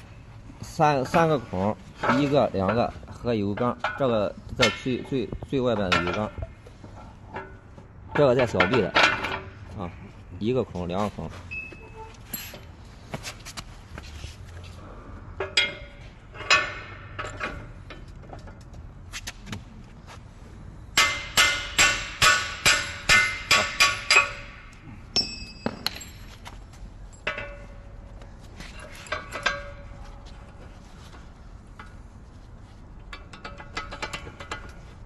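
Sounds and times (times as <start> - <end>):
hammer striking steel: 20.9 - 26.2.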